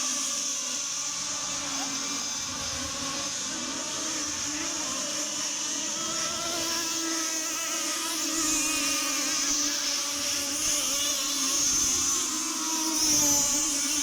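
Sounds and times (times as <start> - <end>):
model boat engines at speed: 0.0 - 14.0.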